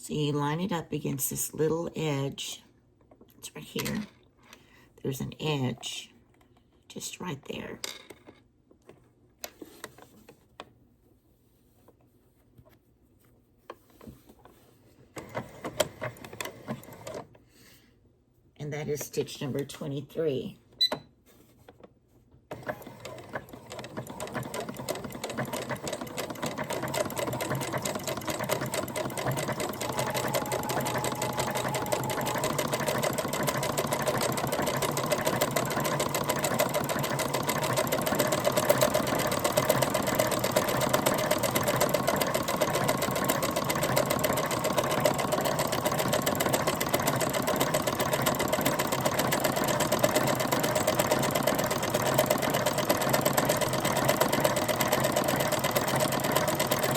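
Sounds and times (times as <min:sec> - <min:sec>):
sewing machine running: 0:22.5 - 0:56.9.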